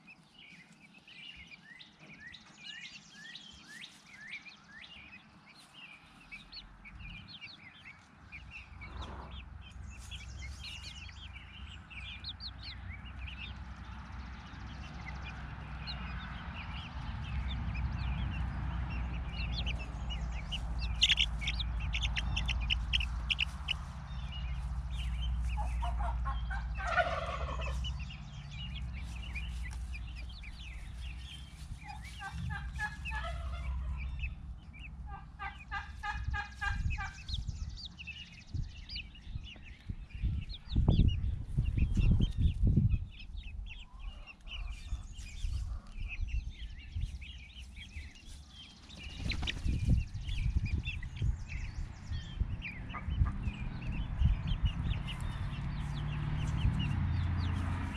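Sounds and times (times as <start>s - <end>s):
fowl chirping and calling: 0.0s - 57.9s
low rumble: 8.3s - 43.8s, 44.6s - 57.9s.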